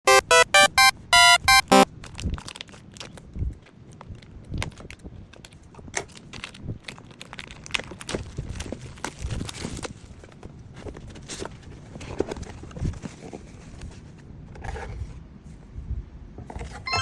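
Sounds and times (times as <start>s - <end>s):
short electronic beeps: 0.0s - 1.8s
packaging crinkling and tapping: 4.0s - 11.5s.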